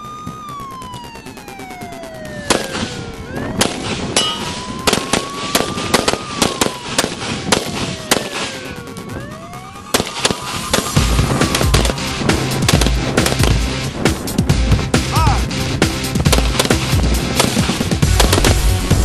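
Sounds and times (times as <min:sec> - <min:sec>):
wailing siren: 0:00.0 - 0:14.0
rapid rifle gunfire: 0:04.8 - 0:08.5, 0:12.6 - 0:13.7, 0:16.2 - 0:18.6.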